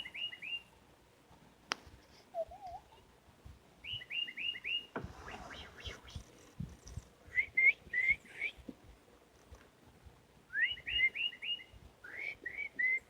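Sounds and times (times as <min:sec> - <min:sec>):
songbird whistling rising notes: 0:00.0 - 0:00.7, 0:03.8 - 0:06.3, 0:07.3 - 0:08.6, 0:10.5 - 0:13.0.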